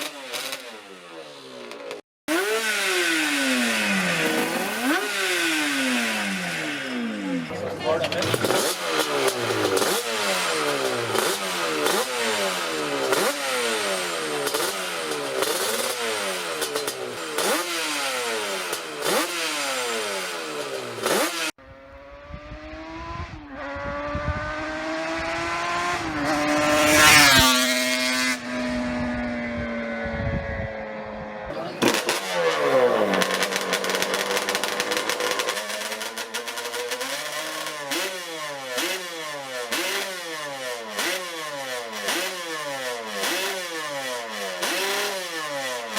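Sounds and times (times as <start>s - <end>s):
motorcycle engines revving: 0.0s - 45.9s
motorcycle accelerating past: 1.6s - 41.2s.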